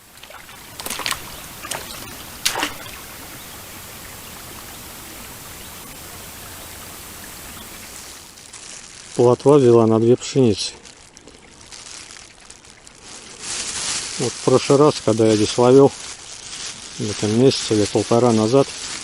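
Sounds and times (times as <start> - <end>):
splashy knocks: 0.0 - 3.8
flowing river water: 0.0 - 14.4.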